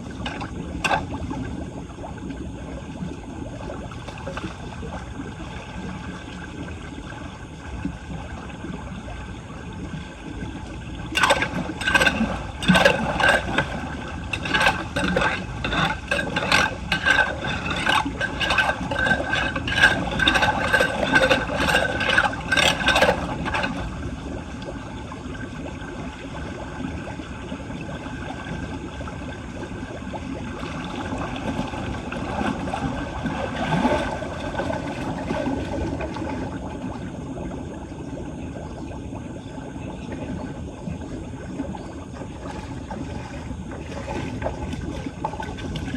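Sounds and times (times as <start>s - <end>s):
scraping and knocking strokes: 11.2s - 23.8s.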